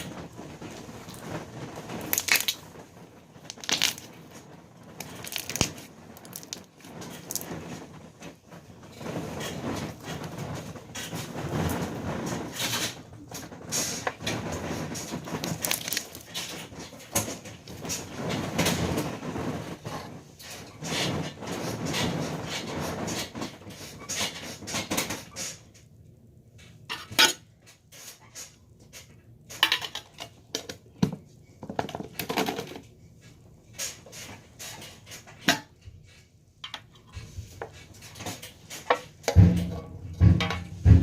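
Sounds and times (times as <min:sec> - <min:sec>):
small hard objects clattering: 0:00.0 - 0:20.9
heavy deep thumps: 0:39.4 - 0:41.0.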